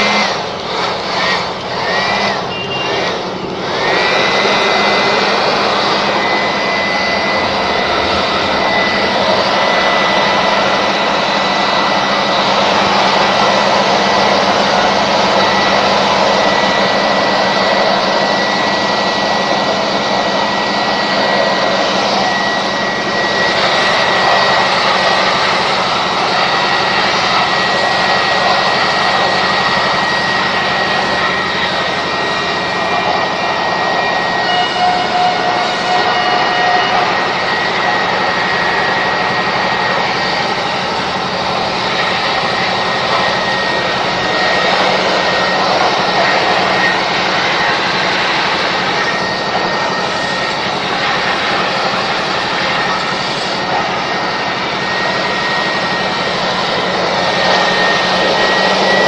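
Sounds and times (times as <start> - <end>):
electric air blower whining: 0.0 - 59.0.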